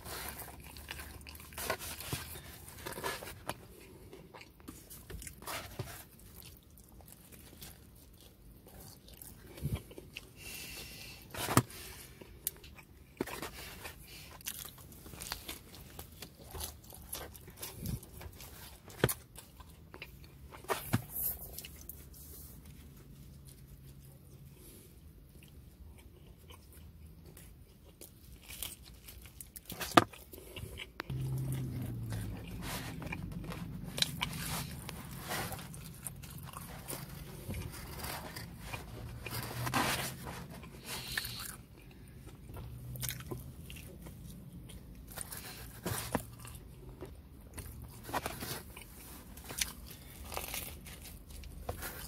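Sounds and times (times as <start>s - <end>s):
person chewing pizza: 0.0s - 52.0s
crust crunching: 28.4s - 41.9s.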